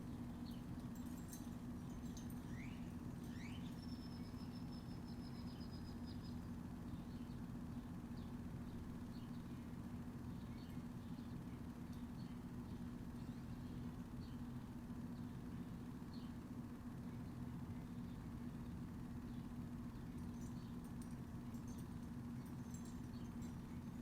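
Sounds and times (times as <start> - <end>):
small birds chirping: 0.0 - 24.0
steady low hum: 0.0 - 24.0
rapid high bird trill: 0.1 - 6.5.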